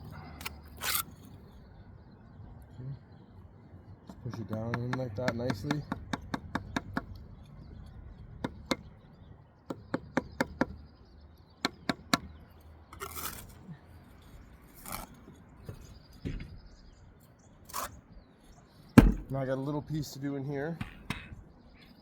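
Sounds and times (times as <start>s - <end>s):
trowel scraping: 0.4s - 1.4s, 13.0s - 15.8s, 17.7s - 18.1s.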